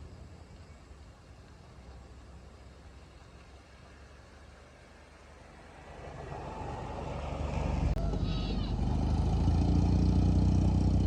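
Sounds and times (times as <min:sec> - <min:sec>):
jeep engine running: 0:05.7 - 0:11.0.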